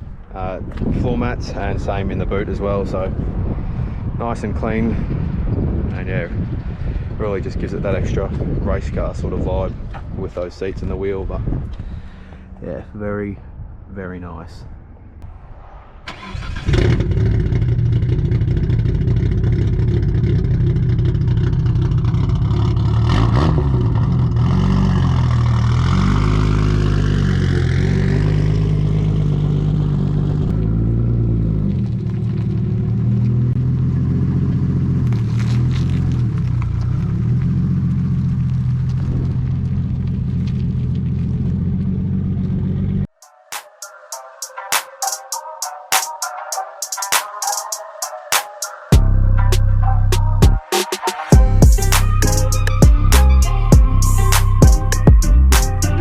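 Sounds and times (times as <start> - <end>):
car engine starting and idling: 16.0 - 43.1.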